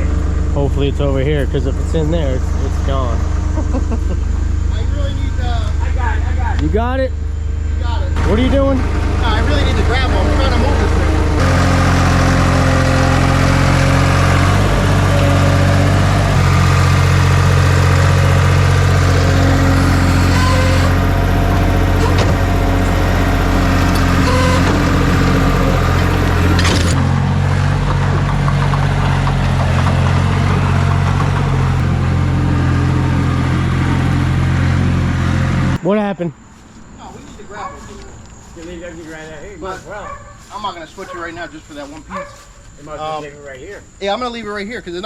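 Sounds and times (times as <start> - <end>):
skid steer engine running: 0.0 - 35.8.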